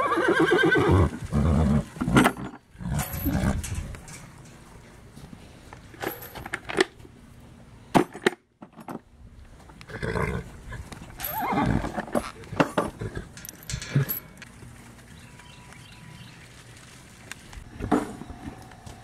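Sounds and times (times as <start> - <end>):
horse whinnying: 0.0 - 3.6, 9.9 - 10.5, 11.2 - 12.3.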